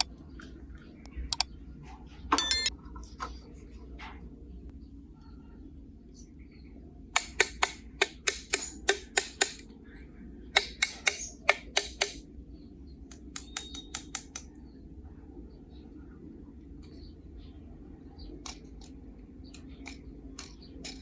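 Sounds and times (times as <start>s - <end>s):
sharp clicks: 2.4s - 2.7s.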